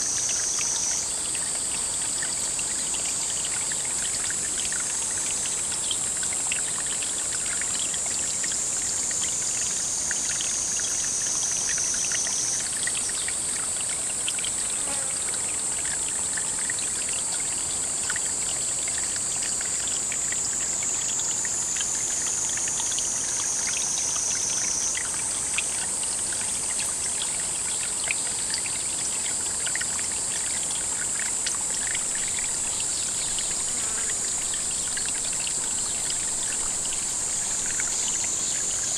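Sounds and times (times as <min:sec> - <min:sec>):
water running and trickling: 0:00.0 - 0:38.9
high-pitched hiss: 0:31.5 - 0:38.9.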